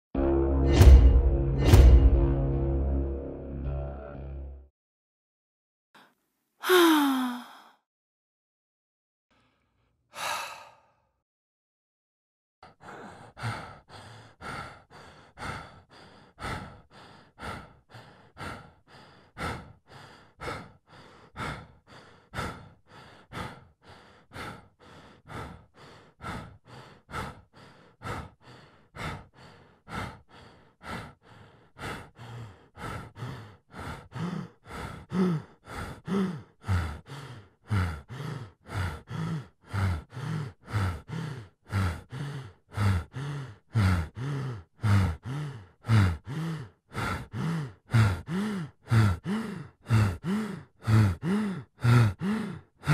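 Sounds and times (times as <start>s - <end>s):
low groaning voice: 3.4s - 4.7s
person breathing fast and hard: 6.0s - 7.9s, 9.3s - 11.2s, 12.6s - 52.9s.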